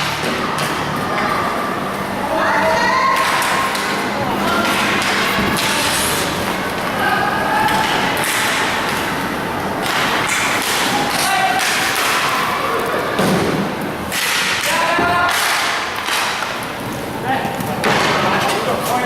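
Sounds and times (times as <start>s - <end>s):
noisy din: 0.0s - 18.5s
players shouting: 0.4s - 13.2s
hockey sticks and puck knocking: 3.1s - 6.6s, 7.6s - 9.1s, 9.8s - 12.5s, 13.2s - 16.7s, 17.6s - 18.7s.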